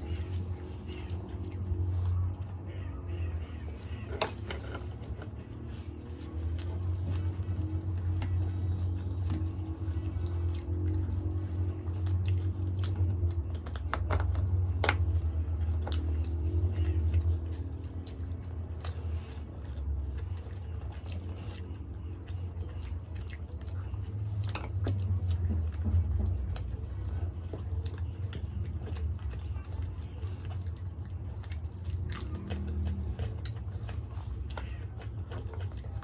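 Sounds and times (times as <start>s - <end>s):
chewing and biting flatbread: 0.0s - 36.0s.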